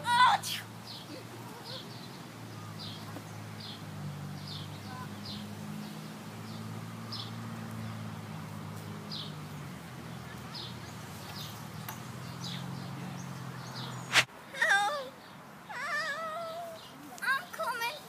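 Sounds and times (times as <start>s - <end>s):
bird chirping: 0.8s - 8.1s, 9.0s - 14.3s.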